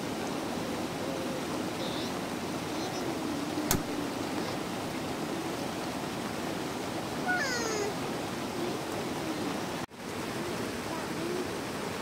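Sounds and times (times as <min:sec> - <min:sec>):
rain hissing: 0:00.0 - 0:12.0
sharp click: 0:03.7 - 0:03.9.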